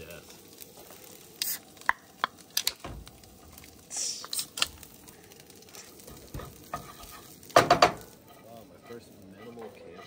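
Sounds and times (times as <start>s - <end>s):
bright hiss: 0.0s - 9.9s
rice sizzling in a skillet: 0.0s - 10.0s
wooden spoon knocking on pan: 7.5s - 8.1s.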